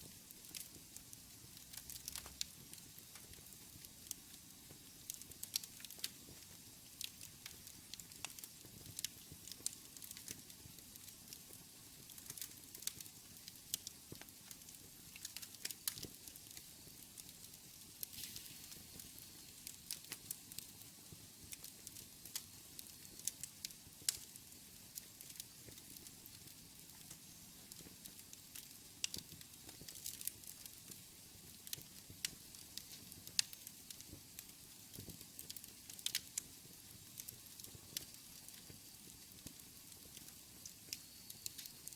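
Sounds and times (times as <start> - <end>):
faint steady hiss: 0.0 - 41.9
wood fire crackling: 0.0 - 41.9.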